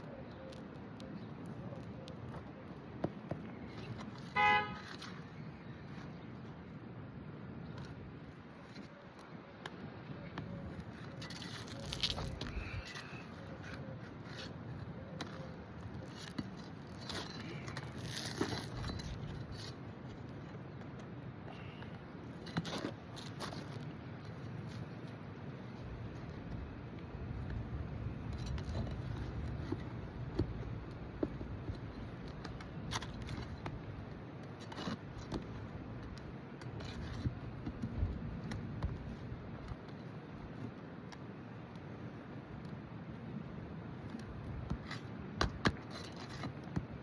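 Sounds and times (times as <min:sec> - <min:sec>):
roof shingles scraping and crackling: 0:10.9 - 0:14.8, 0:16.0 - 0:20.5
tools clicking on roof shingles: 0:44.1 - 0:47.0.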